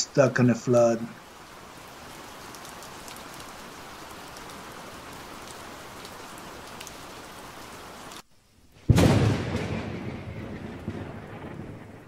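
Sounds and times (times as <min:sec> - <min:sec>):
steady rain falling: 0:00.0 - 0:12.0
raindrop ticks: 0:01.4 - 0:08.2.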